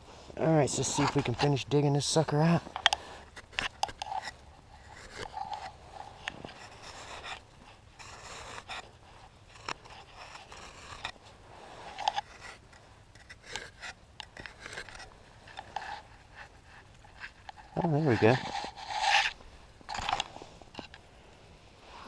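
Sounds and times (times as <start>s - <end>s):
shovel scraping snow: 3.0s - 12.7s, 17.6s - 20.6s.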